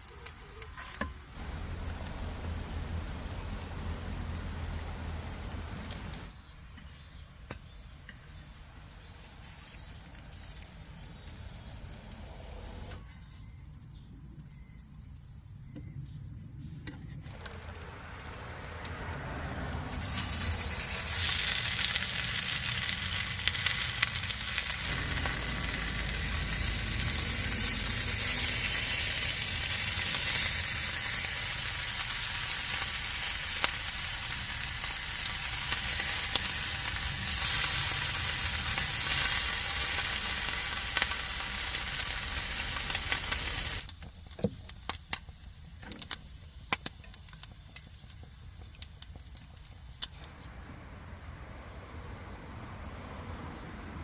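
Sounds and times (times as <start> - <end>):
food sizzling in a hot pan: 19.9 - 43.9.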